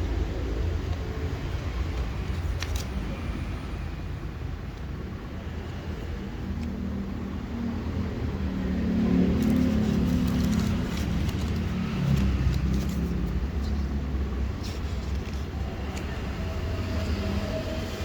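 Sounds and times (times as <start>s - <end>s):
motor vehicle rumble: 6.2s - 18.0s.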